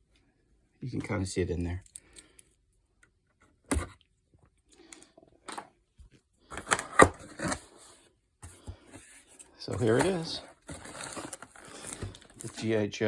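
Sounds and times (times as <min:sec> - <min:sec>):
box and packaging handled: 0:06.5 - 0:12.8.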